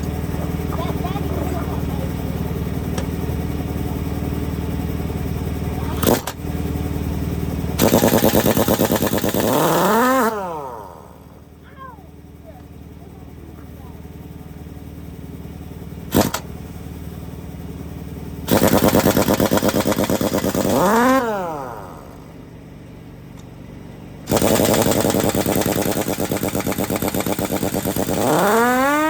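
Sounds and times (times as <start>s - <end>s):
low steady hum: 0.0s - 24.3s
impact wrench hammering: 7.8s - 10.3s, 16.1s - 16.5s, 18.5s - 21.3s, 24.3s - 29.0s.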